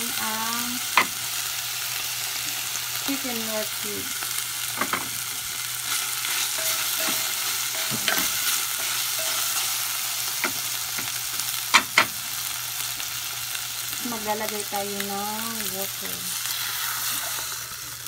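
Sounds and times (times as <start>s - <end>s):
chicken sizzling in a pot: 0.0s - 18.0s.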